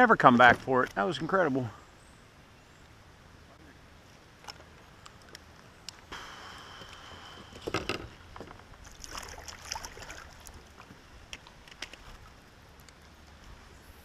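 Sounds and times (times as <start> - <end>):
paddle splashing water: 6.2 - 12.4.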